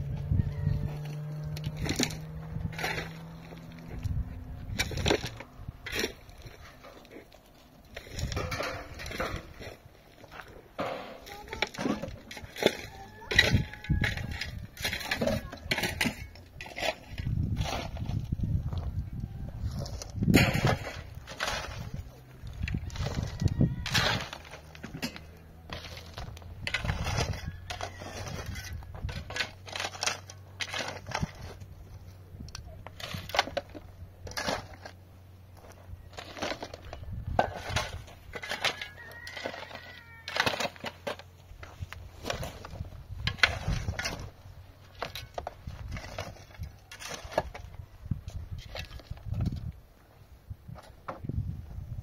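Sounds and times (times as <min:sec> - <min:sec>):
hard objects knocking and scraping: 0:00.2 - 0:35.0.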